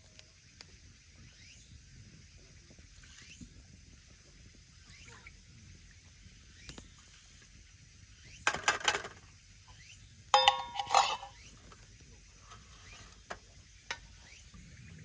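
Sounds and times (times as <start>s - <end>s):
metal cookware clattering: 10.4s - 11.4s
ringing metallic clink: 10.4s - 11.4s.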